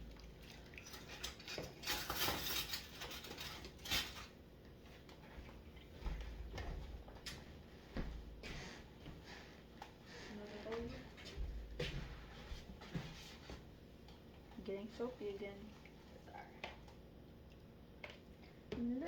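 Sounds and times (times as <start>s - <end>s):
dishes and silverware clinking: 0.8s - 4.3s.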